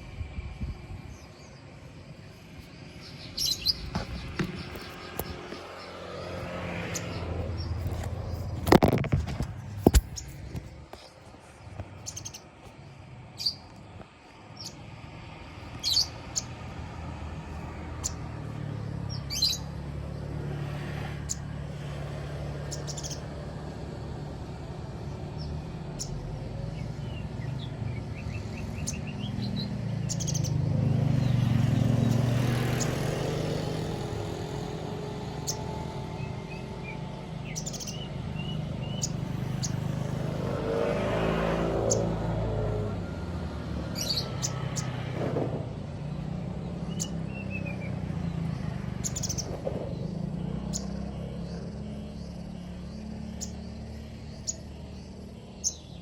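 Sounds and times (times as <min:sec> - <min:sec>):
low engine-like rumble: 0:00.0 - 0:33.0
bird chirping: 0:01.1 - 0:15.0, 0:15.7 - 0:16.8, 0:17.4 - 0:20.4, 0:22.6 - 0:23.4, 0:25.0 - 0:41.1, 0:43.8 - 0:45.0, 0:46.0 - 0:56.0.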